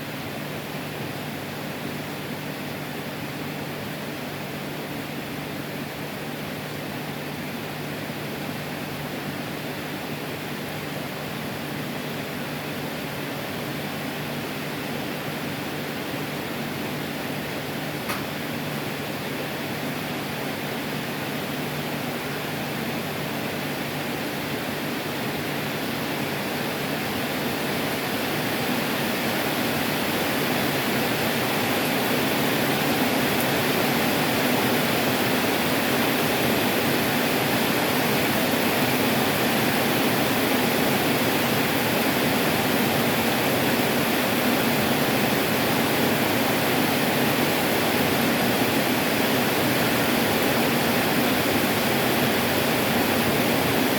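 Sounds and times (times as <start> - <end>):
heavy rain pouring: 24.4 - 53.9.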